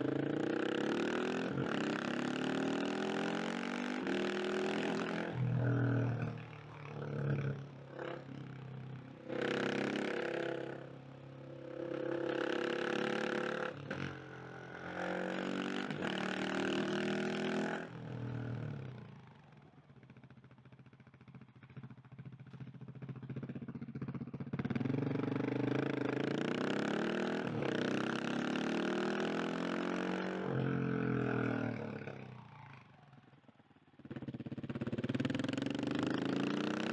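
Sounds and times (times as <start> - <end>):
motorcycle engine revving: 0.0 - 19.2, 21.6 - 33.4, 34.0 - 36.9.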